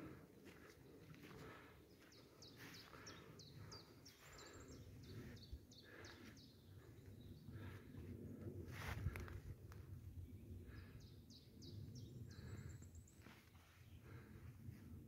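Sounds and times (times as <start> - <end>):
faint footsteps: 0.0 - 4.6
songbird singing: 0.0 - 8.4, 10.2 - 14.3.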